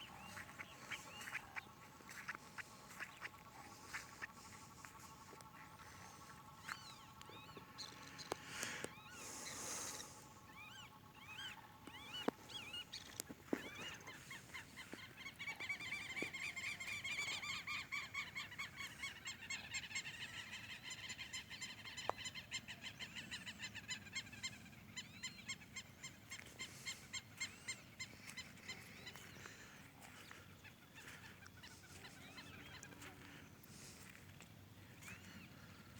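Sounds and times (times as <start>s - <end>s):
frogs calling in chorus: 0.0s - 24.6s.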